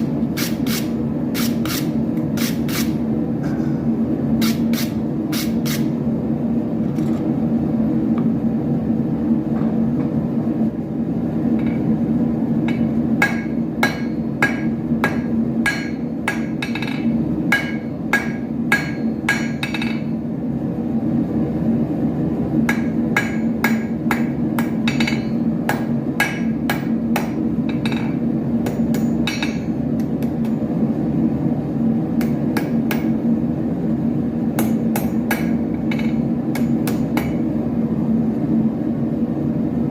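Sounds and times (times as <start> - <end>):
steady low hum: 0.0 - 39.9
hammer striking iron on anvil: 11.6 - 11.9, 12.6 - 20.2, 22.6 - 30.6, 32.2 - 33.2, 34.6 - 37.5.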